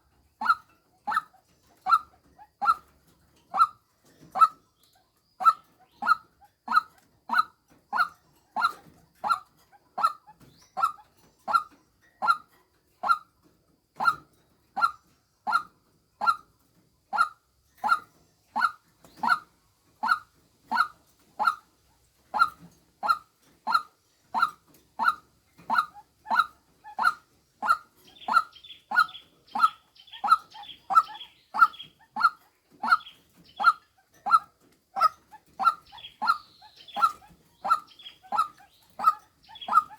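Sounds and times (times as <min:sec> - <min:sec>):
waterhen call: 0:17.9 - 0:21.6, 0:22.3 - 0:39.9.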